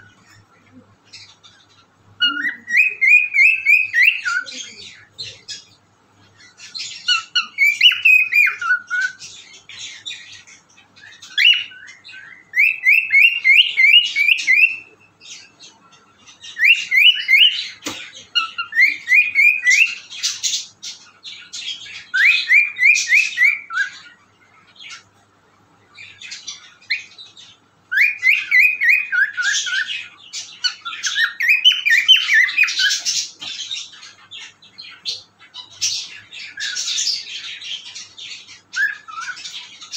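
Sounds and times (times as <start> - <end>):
cockatiel whistling and chirping: 2.2 - 4.6, 6.9 - 9.3, 11.0 - 14.9, 16.5 - 17.7, 18.4 - 20.7, 21.5 - 24.2, 27.9 - 34.2, 34.8 - 39.9.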